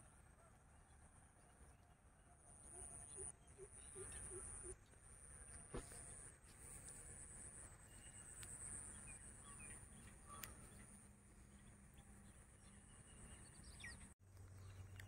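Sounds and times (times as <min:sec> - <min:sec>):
faint bird chirps: 0:02.6 - 0:15.0.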